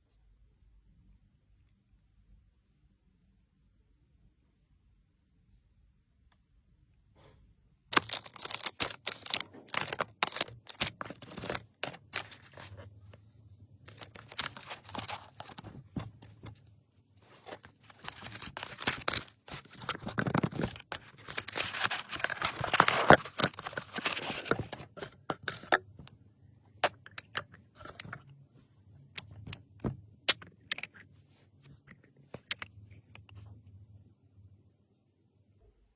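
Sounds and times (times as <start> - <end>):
packaging rustling and tearing: 7.9 - 12.8, 13.9 - 15.8, 17.2 - 25.7.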